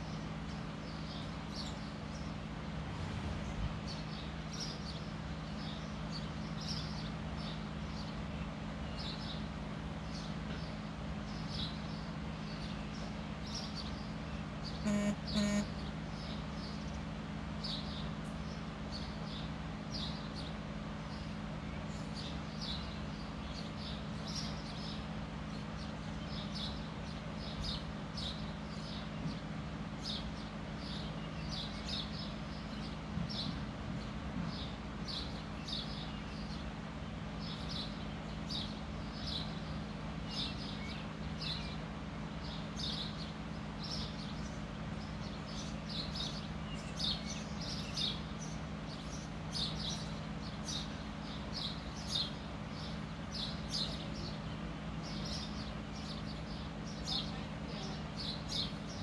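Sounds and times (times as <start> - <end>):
small birds chirping: 0.0 - 59.0
steady low hum: 0.0 - 59.0
short loud pitched tones: 14.8 - 15.7.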